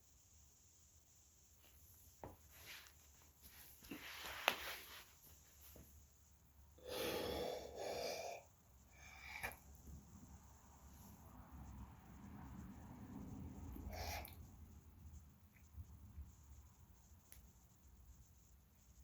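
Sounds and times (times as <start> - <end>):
person breathing forcefully: 6.8 - 9.5.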